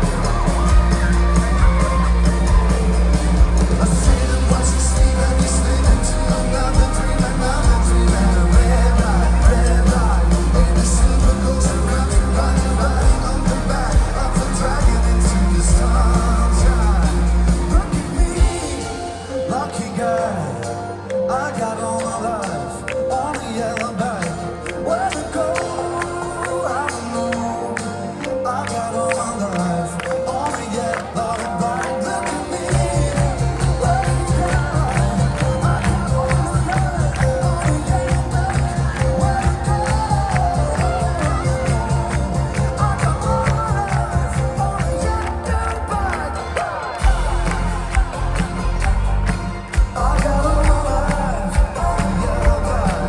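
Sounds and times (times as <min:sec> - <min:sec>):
heavy pulsing bass and drums: 0:00.0 - 0:19.2, 0:32.7 - 0:46.2, 0:47.0 - 0:53.0
folk-rock band playing live: 0:00.0 - 0:53.0
person singing: 0:00.0 - 0:53.0.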